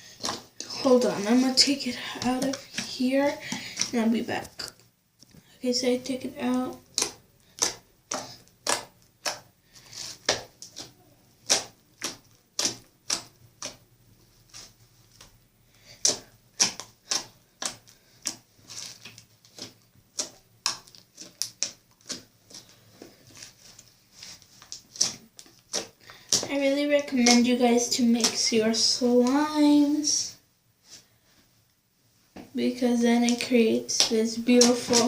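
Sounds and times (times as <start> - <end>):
slime clicking and popping: 10.2 - 13.8.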